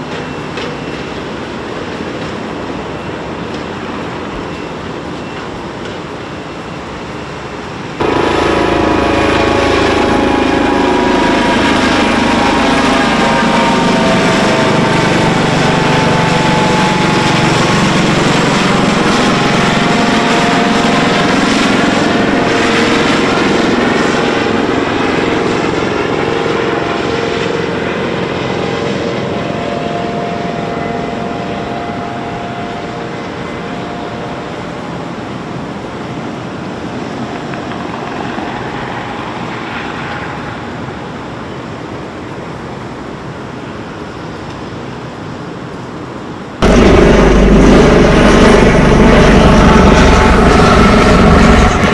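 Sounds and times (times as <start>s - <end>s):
helicopter flying past: 8.0s - 34.4s, 36.9s - 40.9s, 46.6s - 51.9s.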